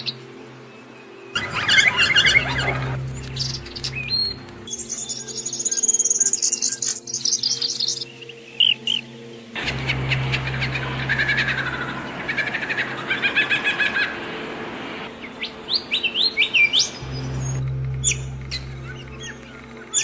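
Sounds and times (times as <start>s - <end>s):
songbirds singing and chirping: 0.0s - 14.3s, 15.0s - 20.0s
low steady hum: 1.4s - 5.5s, 9.6s - 15.8s, 16.7s - 20.0s.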